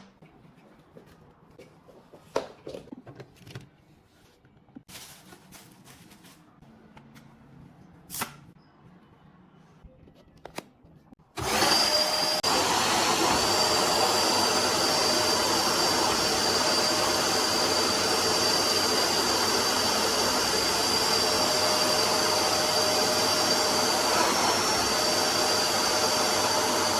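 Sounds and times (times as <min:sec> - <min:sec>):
vacuum cleaner running: 0:11.4 - 0:26.9.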